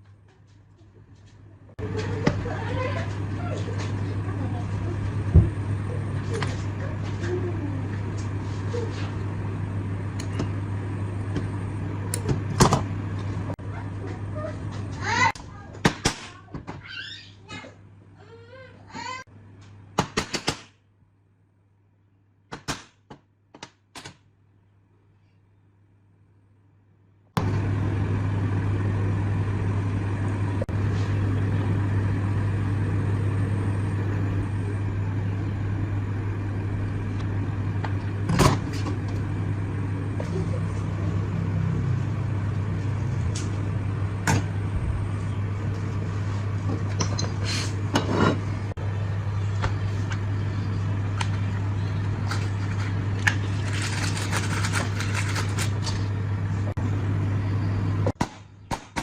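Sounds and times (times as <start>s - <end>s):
machine humming: 27.4s - 58.2s.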